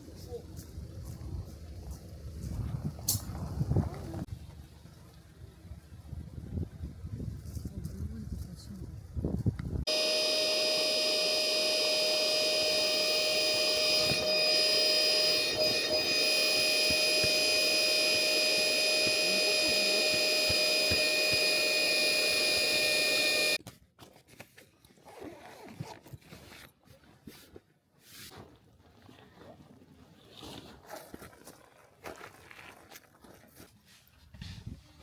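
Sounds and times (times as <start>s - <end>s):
electric blower motor whining: 9.9s - 23.6s.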